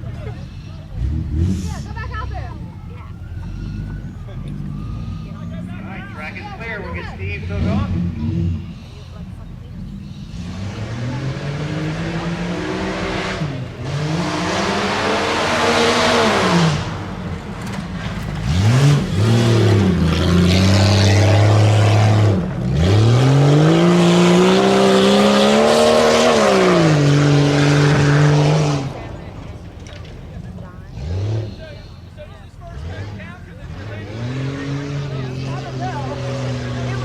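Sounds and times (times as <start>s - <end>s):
truck engine revving: 0.0s - 37.0s.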